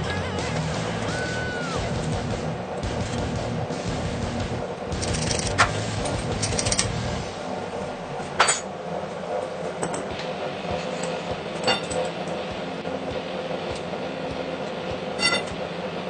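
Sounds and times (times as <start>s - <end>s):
metal parts clinking: 5.0s - 6.9s.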